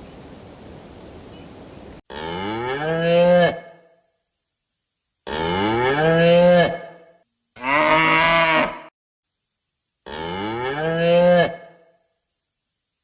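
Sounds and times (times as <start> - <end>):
cattle mooing: 7.6 - 8.9.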